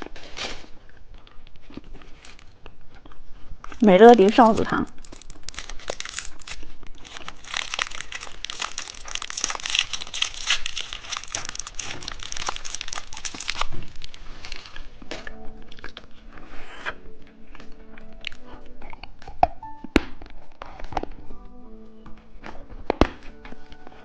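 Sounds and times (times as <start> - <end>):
plastic packaging crinkling: 0.0 - 2.9, 3.6 - 16.3.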